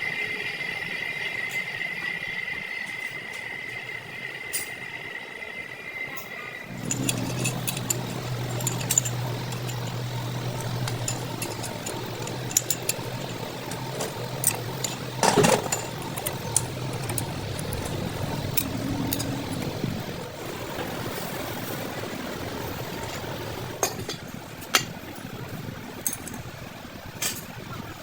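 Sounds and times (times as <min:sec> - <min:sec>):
metallic clicks and clinks: 0:06.7 - 0:20.2, 0:26.0 - 0:26.5
low motor hum: 0:06.7 - 0:24.0.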